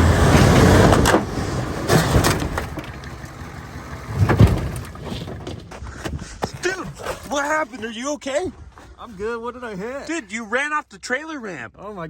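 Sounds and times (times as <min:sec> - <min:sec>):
truck engine running: 0:00.0 - 0:05.8
heavy bangs and clunks: 0:00.0 - 0:06.6.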